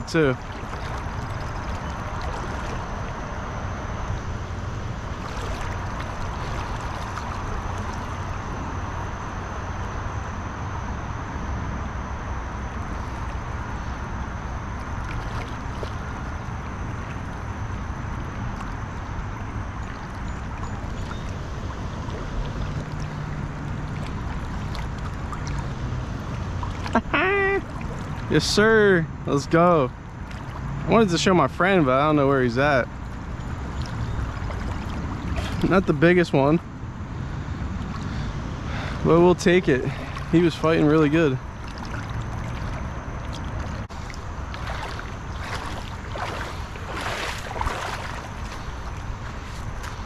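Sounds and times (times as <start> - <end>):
wind rumbling on microphone: 32.9 - 50.0
river water rushing: 38.6 - 50.0.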